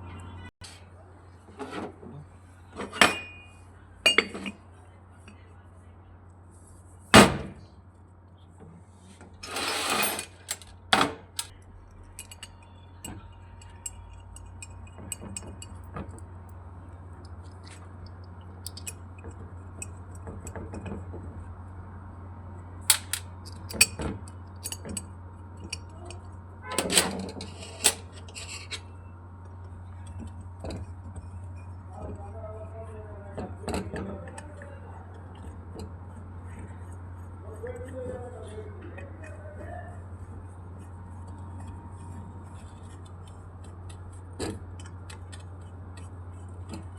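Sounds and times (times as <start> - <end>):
steady low hum: 2.0 - 46.9
tools and metal parts clinking: 2.8 - 4.6, 9.4 - 16.2, 18.6 - 20.9, 22.9 - 29.0.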